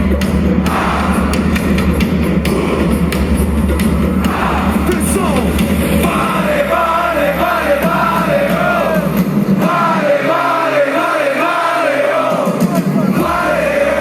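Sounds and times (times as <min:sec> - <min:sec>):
electronic dance music: 0:00.0 - 0:14.0
crowd yelling: 0:04.2 - 0:14.0.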